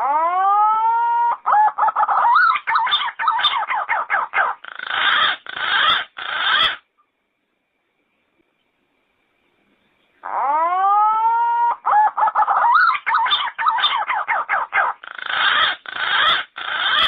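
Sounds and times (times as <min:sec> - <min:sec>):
pigeon singing: 0:00.0 - 0:06.8, 0:10.2 - 0:17.0.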